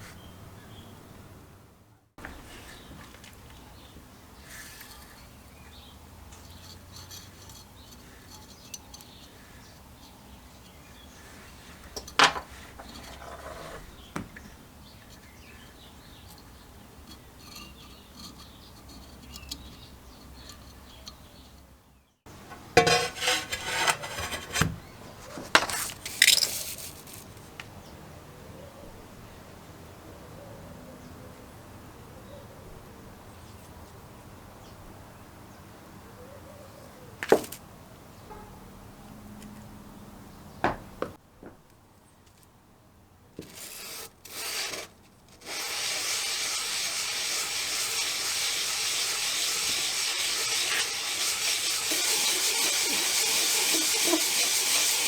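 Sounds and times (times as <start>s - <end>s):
small metal parts clinking: 26.0s - 27.2s.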